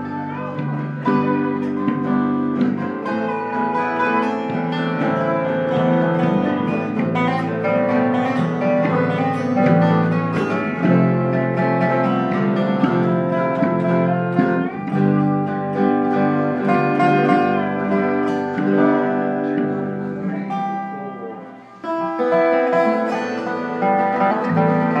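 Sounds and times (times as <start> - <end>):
guitar music: 0.0 - 25.0.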